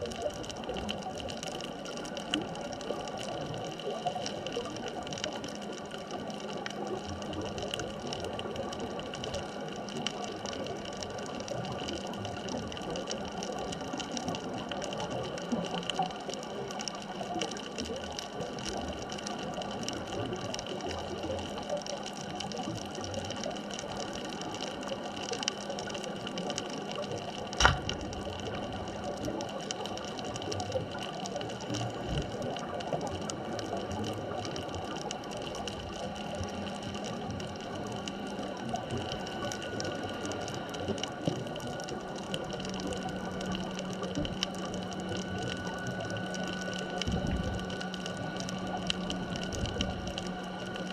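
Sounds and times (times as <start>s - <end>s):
steady hums: 27.4s - 29.4s, 36.0s - 50.9s
sharp click: 27.6s - 28.1s.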